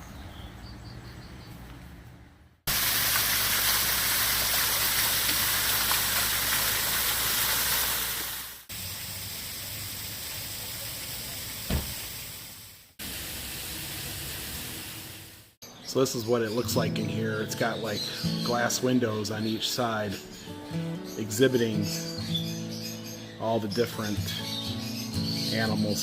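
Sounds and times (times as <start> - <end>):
rushing hiss: 2.7 - 15.6.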